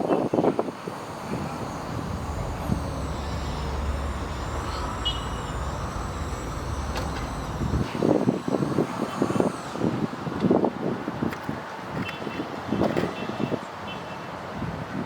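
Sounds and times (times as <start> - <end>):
motor vehicle rumbling: 0.3 - 11.2.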